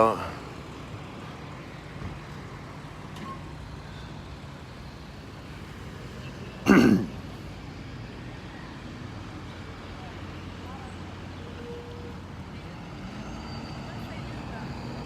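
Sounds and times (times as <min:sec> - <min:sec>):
vehicle engines idling: 0:00.0 - 0:15.0.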